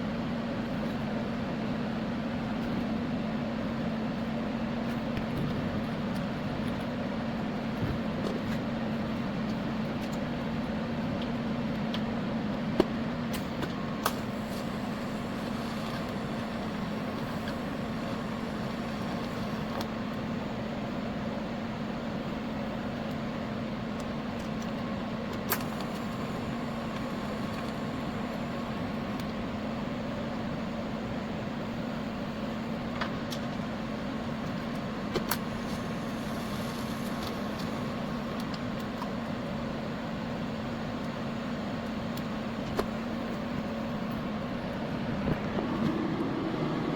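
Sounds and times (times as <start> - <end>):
welding arc humming and hissing: 13.4 - 32.8, 33.6 - 45.0.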